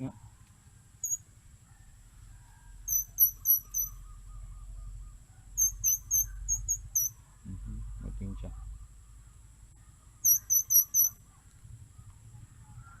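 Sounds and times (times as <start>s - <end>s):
high squeaky chirps: 1.0s - 1.2s, 2.9s - 4.2s, 5.6s - 7.2s, 10.2s - 11.2s
high-pitched insect drone: 2.9s - 4.0s, 5.6s - 7.1s, 10.3s - 11.2s.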